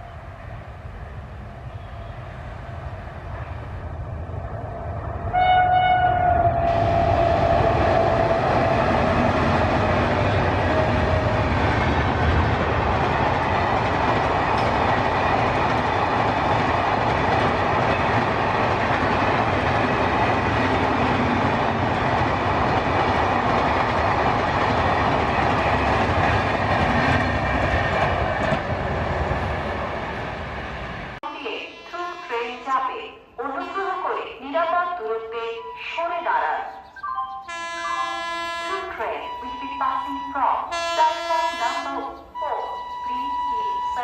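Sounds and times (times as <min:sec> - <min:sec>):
train wheels rushing on rail: 0:00.0 - 0:31.2
train horn: 0:05.3 - 0:11.5, 0:37.5 - 0:44.0.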